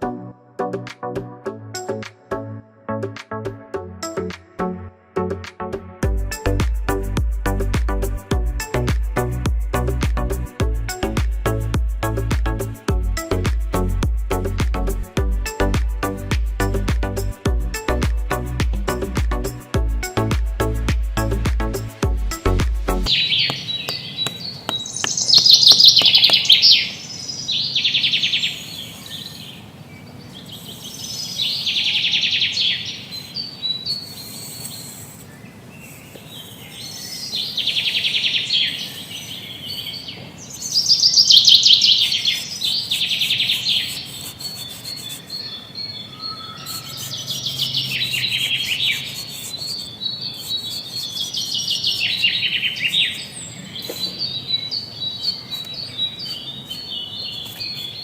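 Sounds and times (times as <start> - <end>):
birds chirping: 15.6 - 58.0.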